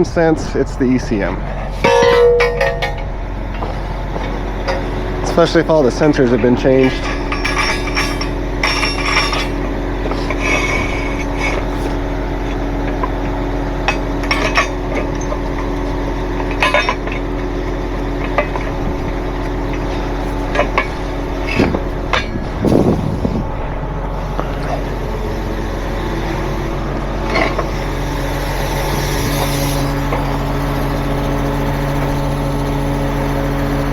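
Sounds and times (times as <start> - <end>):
truck engine idling: 0.0 - 33.9
metal equipment clanking: 1.6 - 13.2, 13.8 - 30.4.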